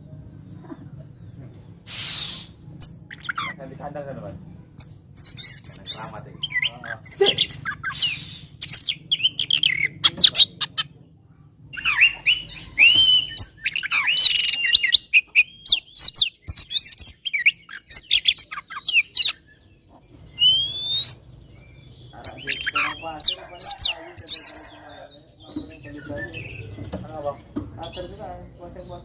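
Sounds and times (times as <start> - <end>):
bird singing whistles and chirps: 4.8 - 10.5, 11.7 - 19.7, 20.3 - 24.8, 25.4 - 26.9.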